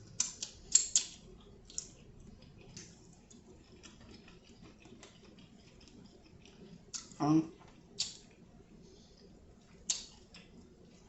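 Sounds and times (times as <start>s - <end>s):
chewing clicks: 0.1s - 7.2s, 8.0s - 8.4s, 9.9s - 10.7s
wet mouth smacks: 8.0s - 8.2s, 9.9s - 10.2s.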